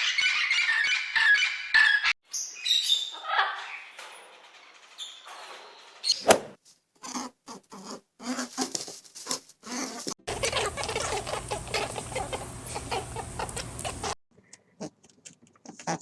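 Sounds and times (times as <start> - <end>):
animal calls and squeaks: 0.0 - 6.4, 9.6 - 14.2.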